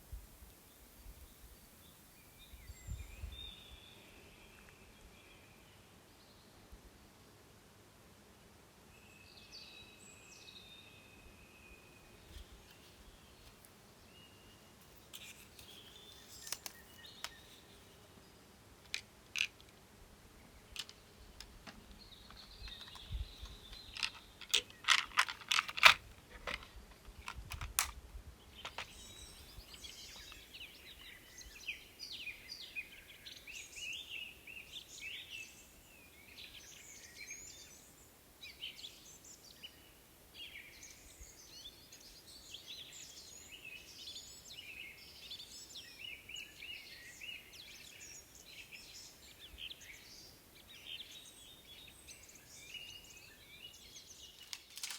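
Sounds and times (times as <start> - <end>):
small birds chirping: 0.0 - 5.0, 11.8 - 54.9
steady outdoor hiss: 0.0 - 54.9
light clicks and taps: 18.8 - 19.8, 20.7 - 28.0.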